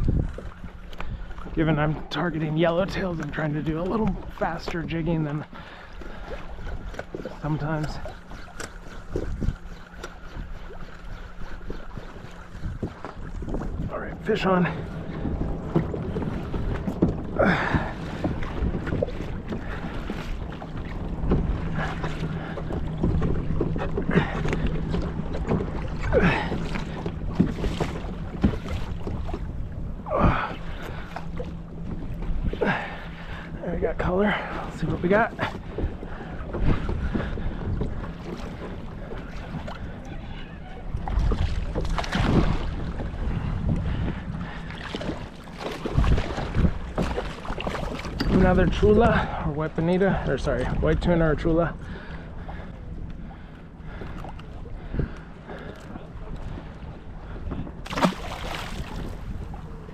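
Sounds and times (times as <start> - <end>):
water slapping against kayak hull: 0.0 - 59.9
wind buffeting microphone: 0.0 - 59.9.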